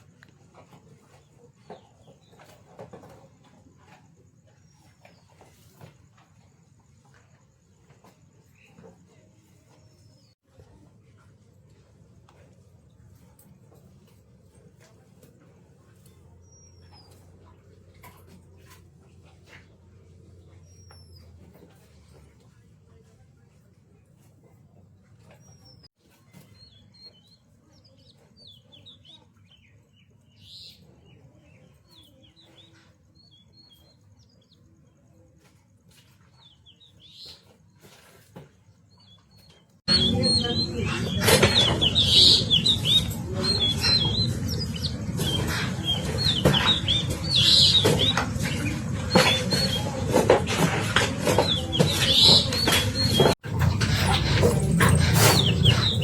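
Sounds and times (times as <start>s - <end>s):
small birds chirping: 15.3s - 22.6s, 24.7s - 50.3s, 51.2s - 56.0s
dense background noise: 39.9s - 56.0s.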